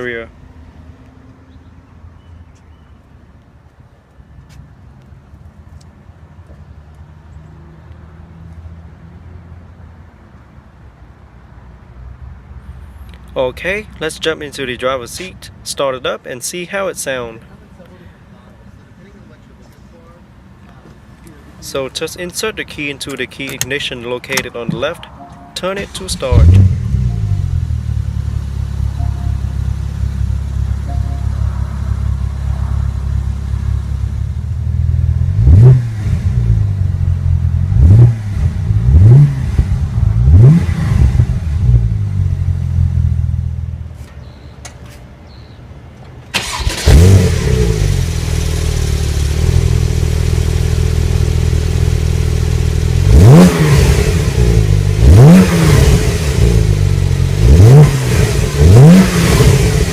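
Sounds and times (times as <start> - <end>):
car engine idling and revving: 23.0 - 44.0, 46.3 - 59.9.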